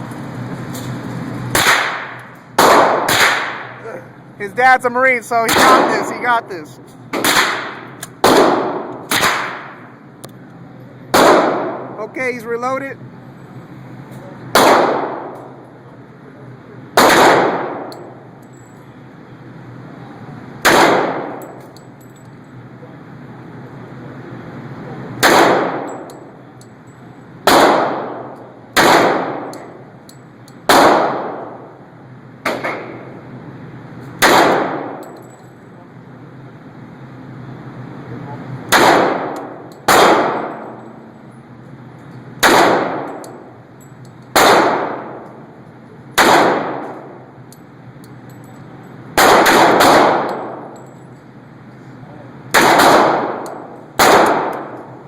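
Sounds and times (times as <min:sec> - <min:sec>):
handgun shots with echo: 0:01.5 - 0:03.7, 0:05.5 - 0:06.1, 0:07.1 - 0:09.8, 0:11.1 - 0:11.9, 0:14.5 - 0:15.5, 0:17.0 - 0:18.1, 0:20.6 - 0:21.7, 0:25.2 - 0:26.2, 0:27.4 - 0:29.8, 0:30.7 - 0:31.6, 0:32.4 - 0:33.0, 0:34.2 - 0:35.2, 0:38.7 - 0:40.8, 0:42.4 - 0:43.4, 0:44.3 - 0:45.3, 0:46.2 - 0:47.2, 0:49.2 - 0:50.8, 0:52.5 - 0:54.9.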